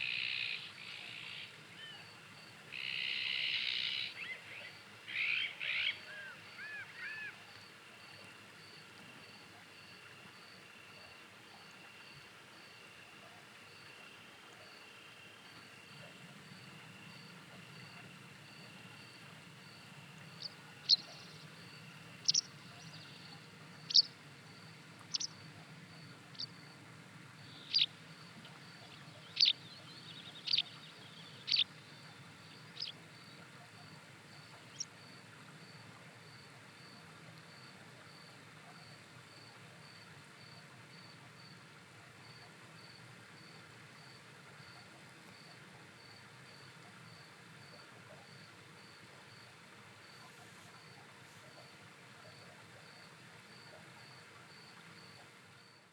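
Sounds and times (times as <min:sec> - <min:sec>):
cricket chirping: 0:15.4 - 0:26.8, 0:27.4 - 0:35.2.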